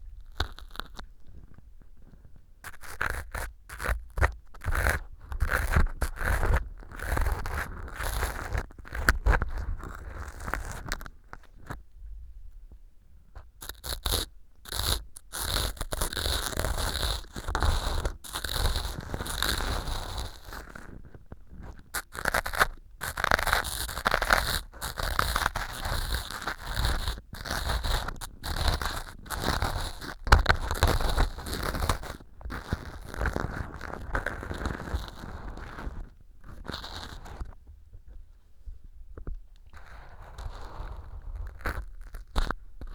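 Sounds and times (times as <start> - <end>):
crisp crunching and scraping: 13.6 - 37.6, 39.8 - 42.9.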